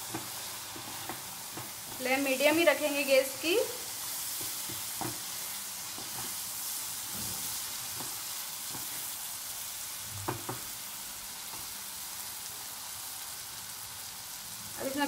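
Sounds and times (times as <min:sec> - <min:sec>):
sauce sizzling in oil: 0:00.0 - 0:15.0
spatula knocking on pan: 0:04.4 - 0:05.3, 0:10.2 - 0:10.7.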